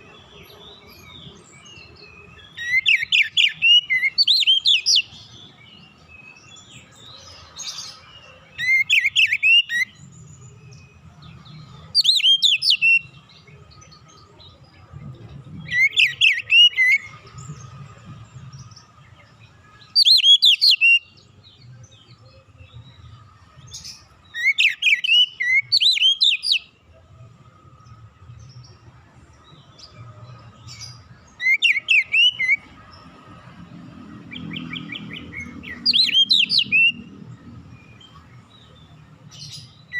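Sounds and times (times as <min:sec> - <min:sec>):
bird singing whistled phrases: 0:02.4 - 0:05.1, 0:08.6 - 0:09.9, 0:12.0 - 0:13.2, 0:20.0 - 0:21.1, 0:24.3 - 0:26.7, 0:31.4 - 0:32.6, 0:34.5 - 0:37.1.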